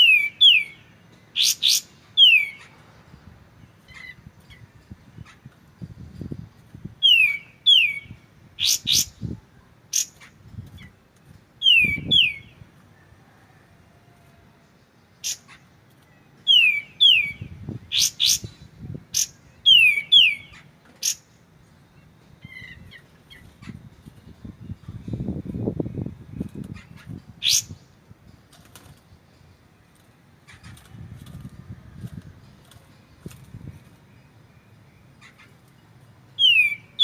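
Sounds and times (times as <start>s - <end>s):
bird whistled calls: 7.0s - 9.2s, 11.6s - 12.5s, 16.5s - 18.6s, 19.2s - 21.2s, 36.4s - 37.0s.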